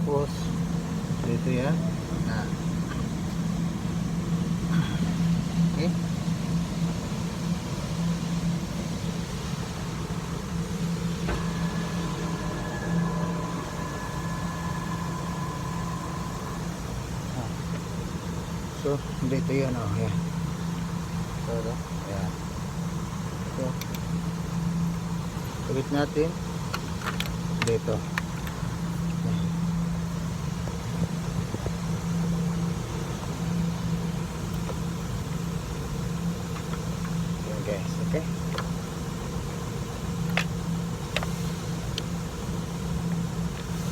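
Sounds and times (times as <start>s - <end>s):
engine humming: 0.0s - 43.9s
faint ticks: 40.2s - 42.2s.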